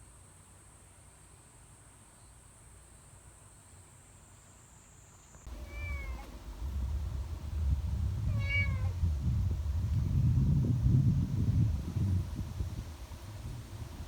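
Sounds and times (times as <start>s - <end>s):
cat meowing: 5.5s - 6.4s, 8.2s - 9.0s
low rumbling noise: 5.5s - 14.0s.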